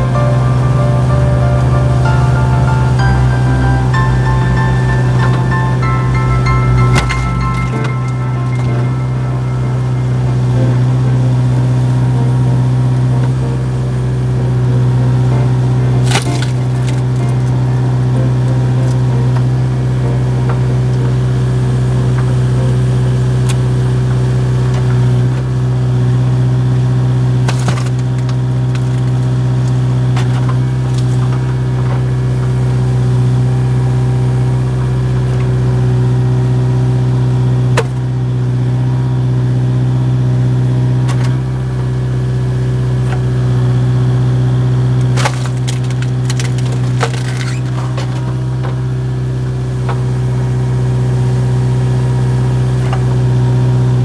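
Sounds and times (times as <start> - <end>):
excavator diesel engine running: 0.0 - 54.0
wood cracking and splintering: 16.0 - 17.5, 45.0 - 47.8.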